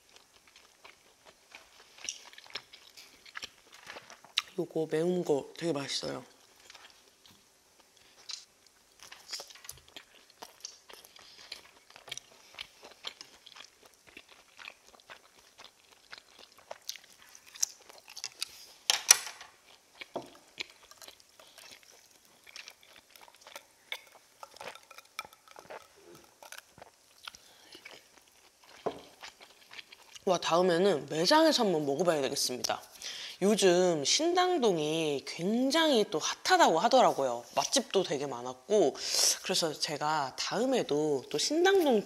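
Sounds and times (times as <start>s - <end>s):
wet chewing sounds: 0.0s - 4.6s, 6.4s - 18.9s, 19.5s - 30.4s.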